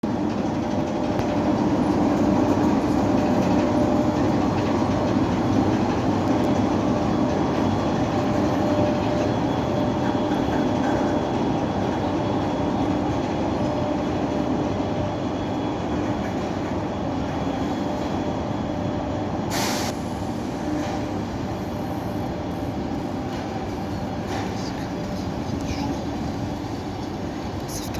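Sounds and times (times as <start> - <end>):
train wheels rumbling on rails: 0.0 - 27.9
short hiss: 19.5 - 20.0.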